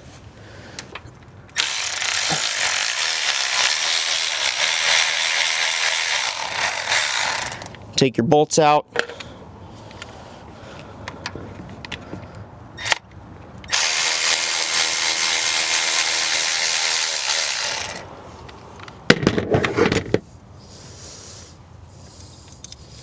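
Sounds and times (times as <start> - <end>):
power tool running: 1.6 - 7.7, 13.7 - 18.0.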